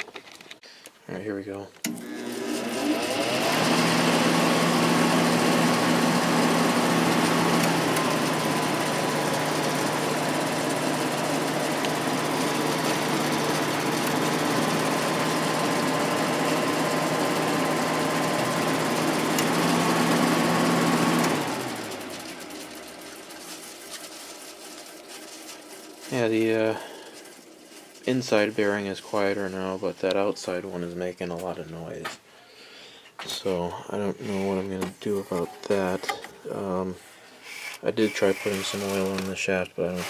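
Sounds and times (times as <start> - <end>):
air conditioner fan motor humming: 1.9 - 32.0
junk rubbing against fan: 5.4 - 30.0, 34.2 - 36.2, 37.4 - 40.0.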